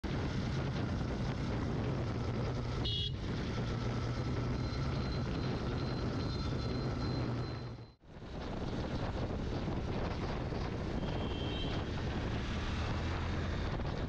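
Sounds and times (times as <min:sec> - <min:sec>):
motorcycle engine running: 0:00.1 - 0:07.9
high-pitched beep: 0:04.6 - 0:08.0.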